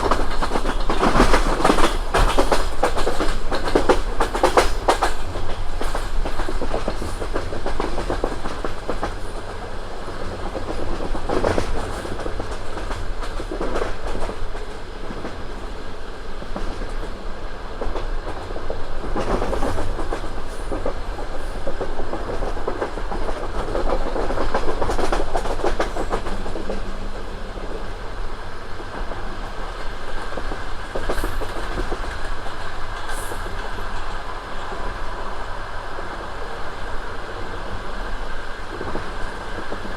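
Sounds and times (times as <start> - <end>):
wheels clattering over rail joints: 0.0 - 9.2
train low rumble: 0.0 - 39.9.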